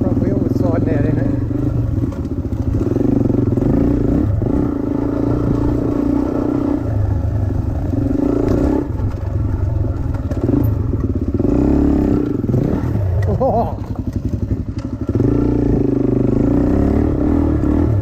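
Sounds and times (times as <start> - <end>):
dirt bike engine running: 0.0 - 18.0
clattering from bike: 8.4 - 11.3, 13.2 - 15.0.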